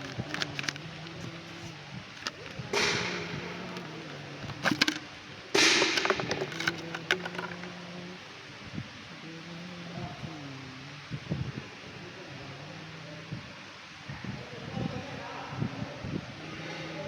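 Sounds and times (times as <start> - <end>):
scraping rustling noises: 0.0 - 8.0
steady low hum: 0.0 - 16.6.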